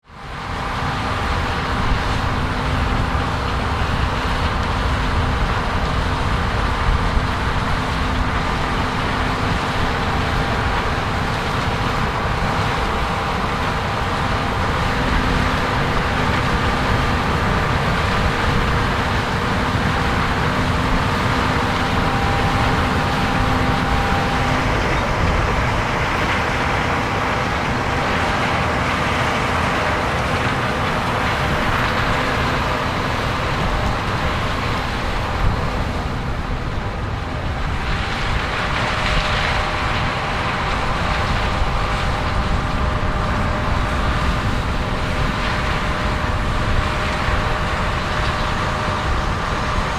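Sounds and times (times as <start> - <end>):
heavy machinery drone: 0.0 - 49.9
faint steady whine: 0.1 - 49.9.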